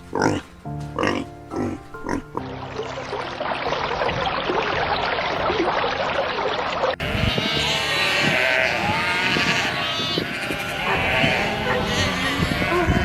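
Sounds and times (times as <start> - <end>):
sheep bleating: 7.0 - 13.0.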